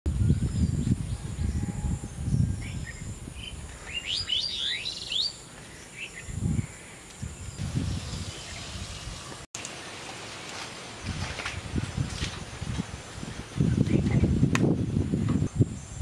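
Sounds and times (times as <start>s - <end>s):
bird chirping: 0.3s - 7.6s.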